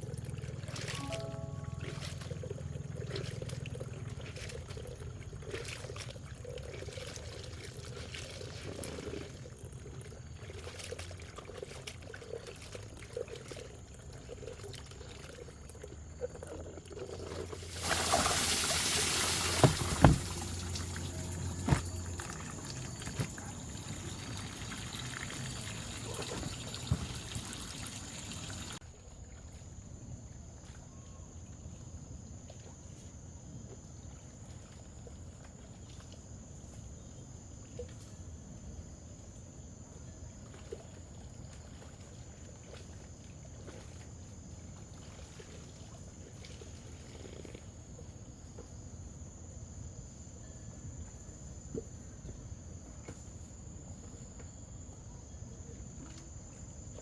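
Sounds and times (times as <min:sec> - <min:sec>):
water pouring and trickling: 0:00.0 - 0:29.6
sharp knocks: 0:19.6 - 0:20.4.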